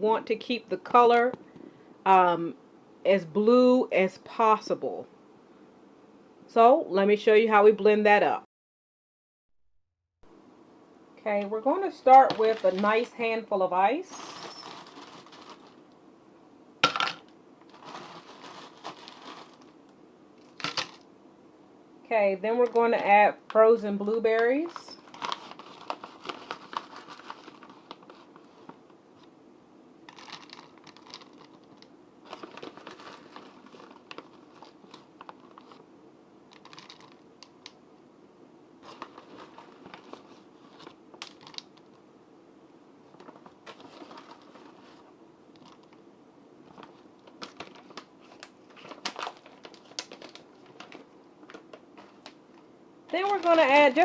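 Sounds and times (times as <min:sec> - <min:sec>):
packaging crinkling: 0:12.2 - 0:13.2, 0:14.1 - 0:16.0, 0:16.8 - 0:21.1, 0:24.6 - 0:29.3, 0:30.1 - 0:35.9, 0:36.5 - 0:37.8, 0:38.8 - 0:42.0, 0:43.0 - 0:46.0, 0:46.6 - 0:54.0.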